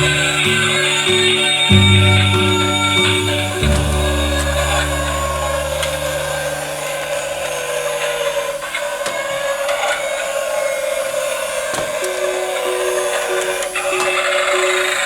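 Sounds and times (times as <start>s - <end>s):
low sustained note: 0.0s - 8.9s.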